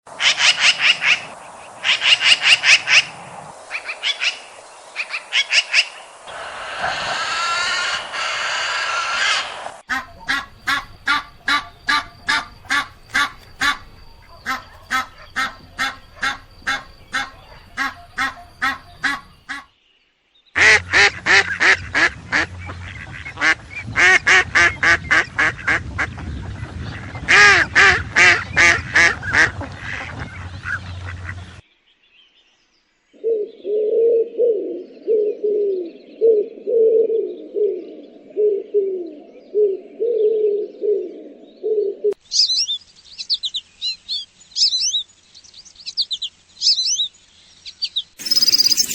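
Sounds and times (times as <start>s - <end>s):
quick repeated bird calls: 3.8s - 19.7s, 48.2s - 48.9s
loud repeated bird calls: 3.8s - 19.8s, 48.2s - 48.9s
bird giving low calls: 6.3s - 19.6s, 48.2s - 48.9s.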